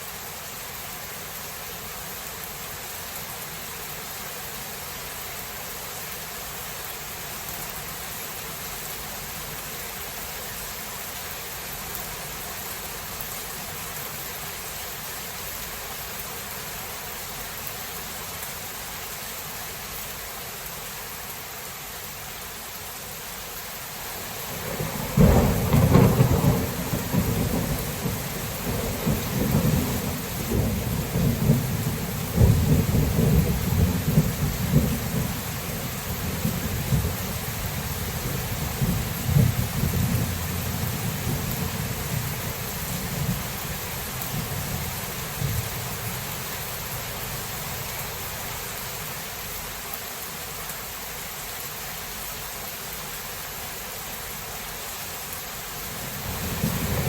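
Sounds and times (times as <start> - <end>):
steady rain hiss: 0.0 - 57.0
thunderclap with low rumbling: 24.5 - 43.5, 56.2 - 57.0.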